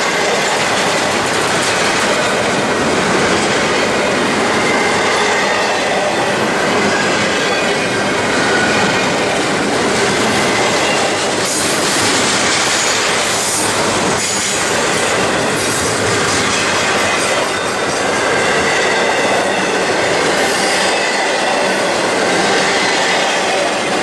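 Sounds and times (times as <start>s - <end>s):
train wheels rolling on rail: 0.0s - 24.0s
high wheel squeal: 4.0s - 24.0s.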